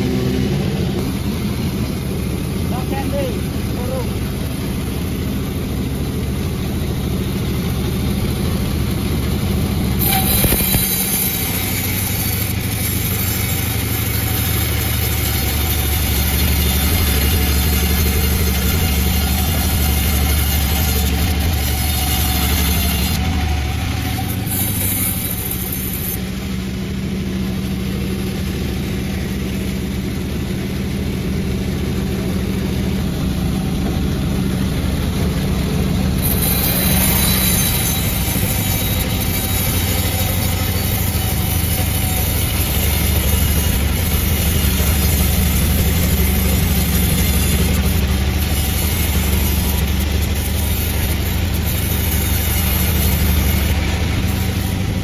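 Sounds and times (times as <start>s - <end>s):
chainsaw cutting log: 0.0s - 55.0s
chainsaw engine running: 0.0s - 55.0s.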